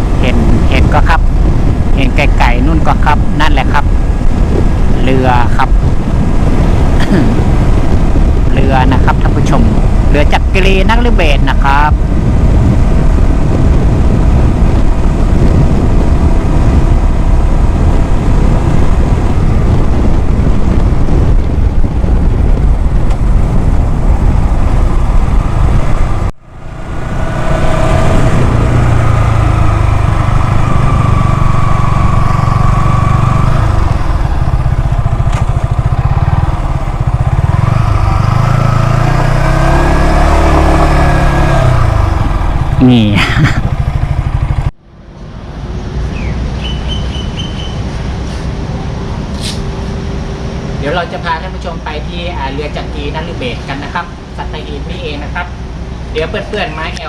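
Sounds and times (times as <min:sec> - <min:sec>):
motorcycle engine: 0:00.0 - 0:45.0
wind rumble on microphone: 0:00.0 - 0:57.0.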